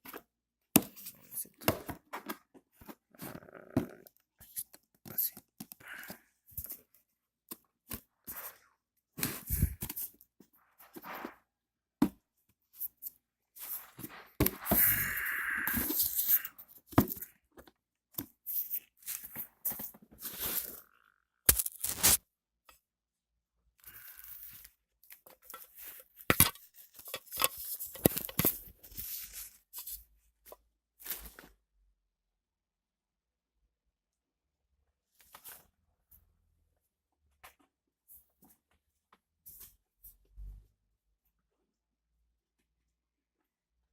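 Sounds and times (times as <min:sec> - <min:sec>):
packaging rustling and tearing: 0:21.5 - 0:22.2.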